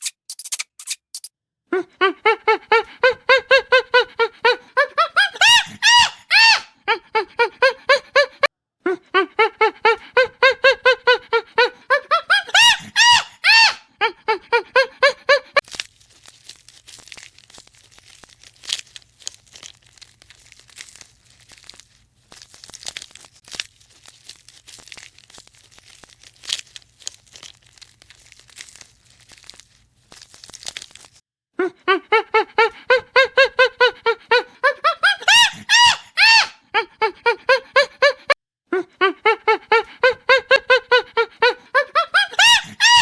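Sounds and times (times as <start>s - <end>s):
faint crackling and rustling: 15.6s - 31.2s.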